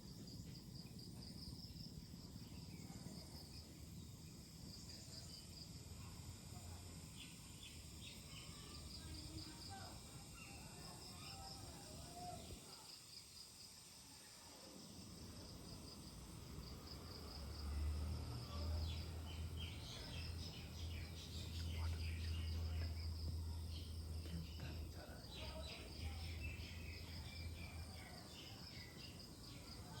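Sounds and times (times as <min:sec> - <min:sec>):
insect trill: 0:00.0 - 0:30.0
small bird chirping: 0:18.5 - 0:30.0.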